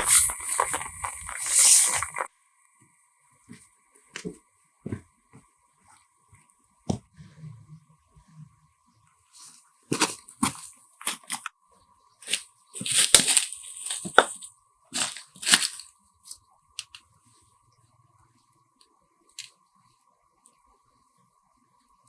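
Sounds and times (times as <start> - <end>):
crunching and tearing: 0.0 - 2.3, 12.2 - 15.9.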